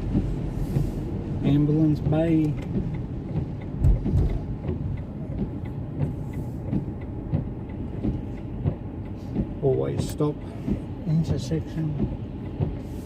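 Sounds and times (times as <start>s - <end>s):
car engine and tyres rumbling: 0.0s - 13.0s
low thump: 3.8s - 4.8s.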